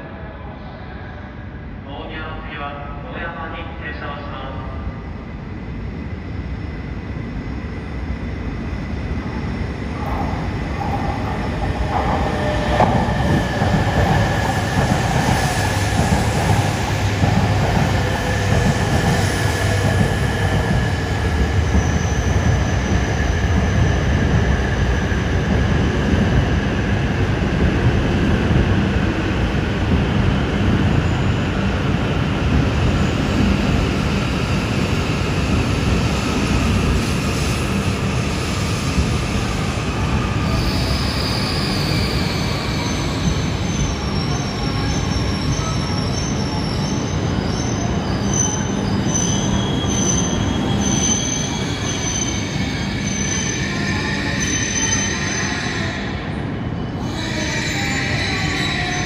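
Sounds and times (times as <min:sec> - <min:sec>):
train rumbling: 0:02.2 - 0:59.0
high squeal: 0:39.4 - 0:59.0.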